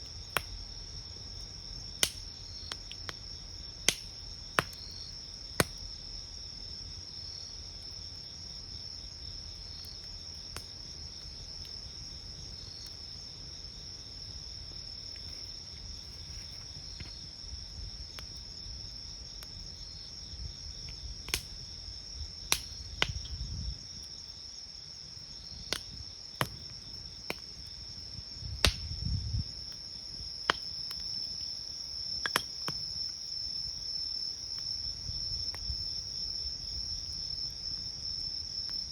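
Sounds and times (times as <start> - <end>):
crickets chirping: 0.0 - 38.9
campfire popping and snapping: 0.1 - 0.6, 1.4 - 6.0, 9.3 - 16.0, 18.0 - 18.5, 20.8 - 24.2, 25.0 - 33.2.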